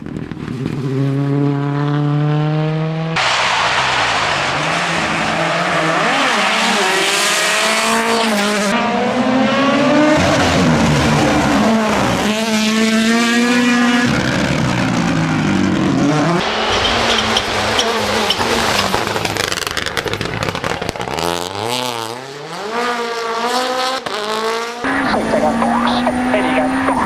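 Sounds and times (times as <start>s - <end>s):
exhaust crackling pops: 0.0s - 0.8s, 16.4s - 21.6s
rally car engine revving: 0.0s - 27.0s.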